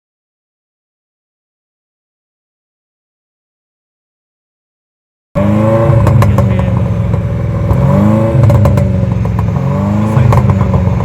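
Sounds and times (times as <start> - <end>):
car engine revving: 5.4 - 11.0.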